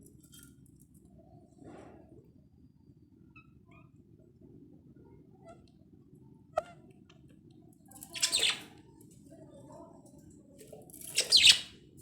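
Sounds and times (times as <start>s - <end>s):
parrot chirps: 8.1s - 8.7s, 11.1s - 11.7s.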